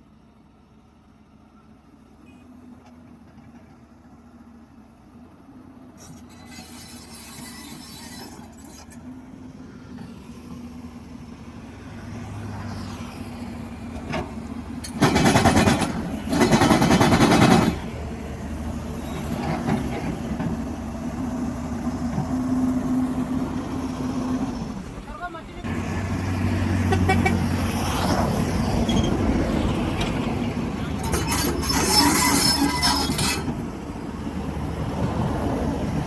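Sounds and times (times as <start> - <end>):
heavy diesel engine running: 0.0 - 36.0.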